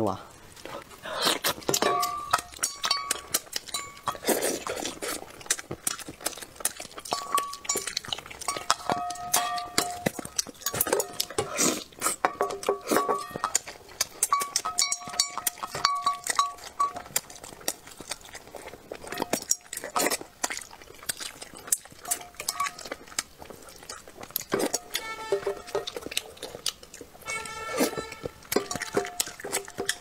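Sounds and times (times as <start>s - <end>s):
wet chewing mouth clicks: 0.6s - 30.0s
chopsticks clinking on dishes: 1.7s - 4.5s, 7.0s - 11.5s, 12.2s - 17.2s, 22.1s - 22.9s, 24.5s - 26.2s, 27.2s - 30.0s.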